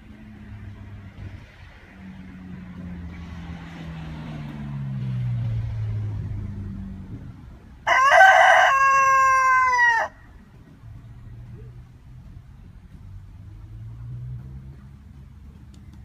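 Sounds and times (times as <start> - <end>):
vehicle passing: 0.0 - 16.0
rooster crowing: 7.8 - 10.2.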